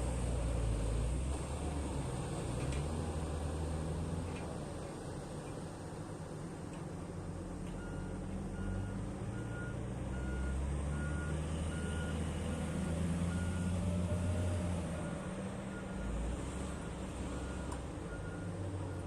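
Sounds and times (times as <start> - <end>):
reversing alarm beeping: 7.8 - 12.2.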